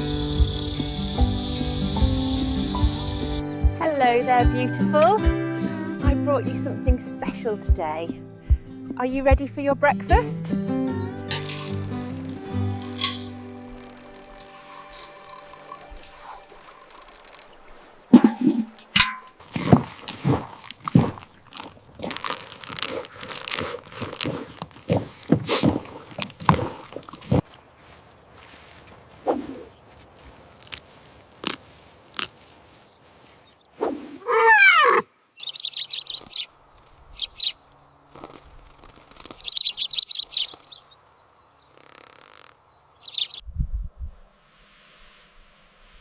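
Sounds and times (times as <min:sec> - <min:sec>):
rising and falling call: 0:00.0 - 0:03.8, 0:10.6 - 0:18.8
birds chirping: 0:00.0 - 0:20.0, 0:32.8 - 0:43.4.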